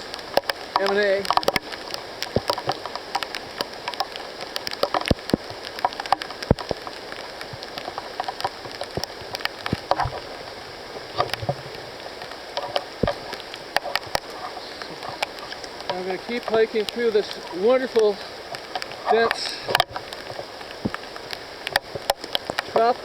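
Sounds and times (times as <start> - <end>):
rain drop ticks: 0.0 - 23.0
rain on foliage: 0.0 - 23.0
low thuds: 11.0 - 12.1.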